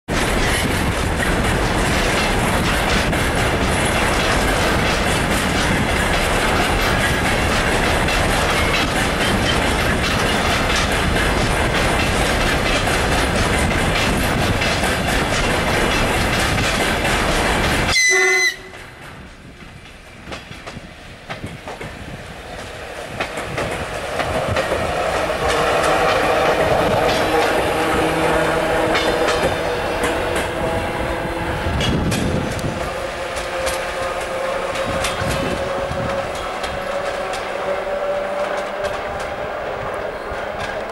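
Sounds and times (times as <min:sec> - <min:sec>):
electric train approaching: 0:00.1 - 0:40.9
freight train wheels clattering: 0:00.1 - 0:40.9
train horn blast: 0:17.9 - 0:19.0, 0:25.1 - 0:40.9.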